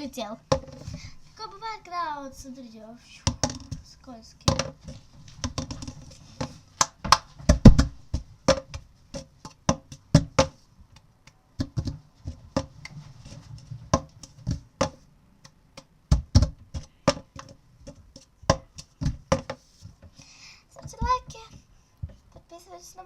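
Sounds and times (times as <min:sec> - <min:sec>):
plastic cup knocking on a book: 0:05.4 - 0:10.6, 0:13.9 - 0:15.0, 0:16.1 - 0:19.6.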